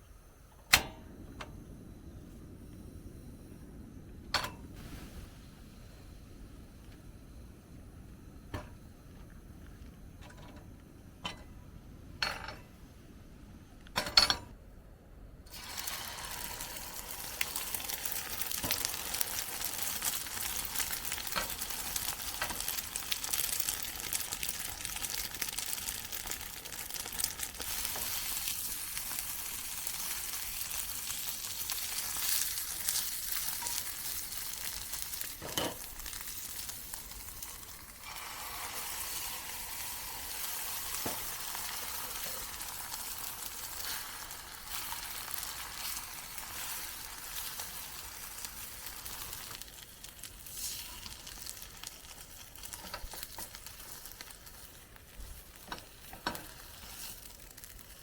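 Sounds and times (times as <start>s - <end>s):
food sizzling in a pan: 4.7s - 6.4s, 15.5s - 58.0s.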